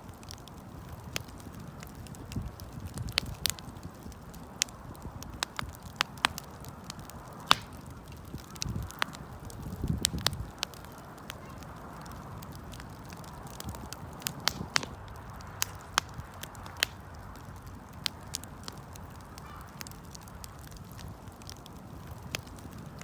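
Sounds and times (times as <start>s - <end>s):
burning wood crackling: 0.0s - 23.0s
low rush of flames: 0.0s - 23.0s.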